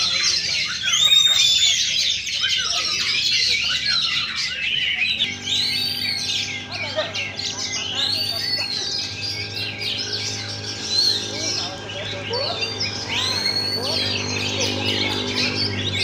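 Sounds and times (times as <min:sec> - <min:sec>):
chorus of songbirds singing: 0:00.0 - 0:16.0
steady hum: 0:05.0 - 0:16.0.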